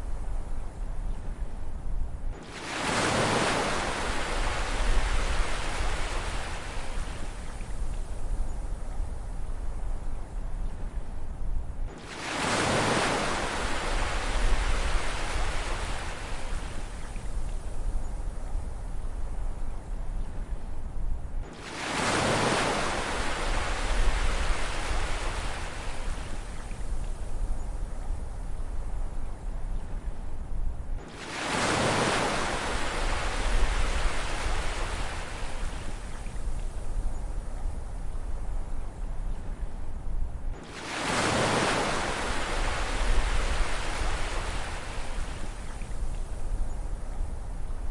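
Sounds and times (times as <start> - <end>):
low rumble of sea: 0.0 - 47.9
ocean wave breaking on shore: 2.4 - 7.4, 11.9 - 16.9, 21.5 - 26.5, 31.1 - 36.1, 40.6 - 45.7.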